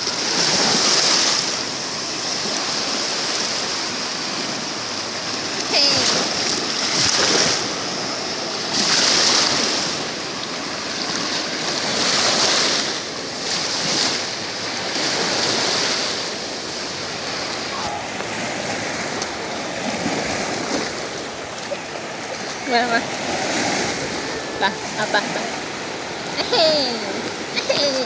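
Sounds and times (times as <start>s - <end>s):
sea waves washing: 0.0s - 28.0s.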